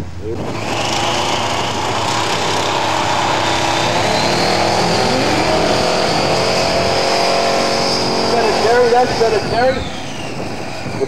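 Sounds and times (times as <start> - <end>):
second car engine: 0.0 - 11.0
engine revving high: 0.4 - 11.0
supercharger whistle: 0.5 - 11.0.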